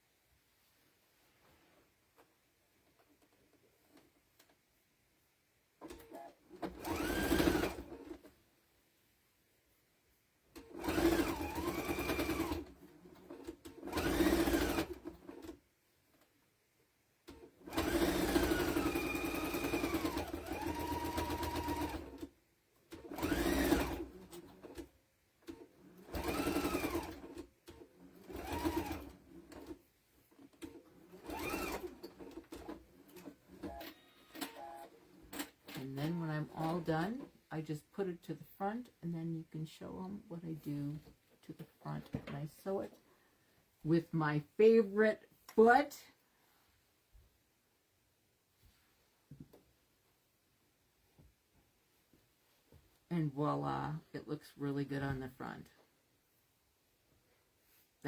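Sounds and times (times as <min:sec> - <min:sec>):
electric sewing machine stitching: 0:05.8 - 0:08.3, 0:10.5 - 0:15.6, 0:17.2 - 0:22.3, 0:22.9 - 0:37.2.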